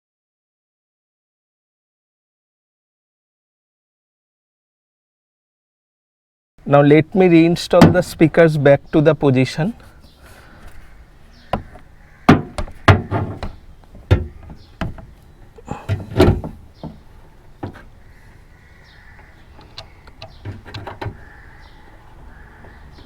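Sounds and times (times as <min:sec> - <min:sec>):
plastic knocks and clicks: 0:11.4 - 0:15.2, 0:15.9 - 0:17.0, 0:19.2 - 0:21.3.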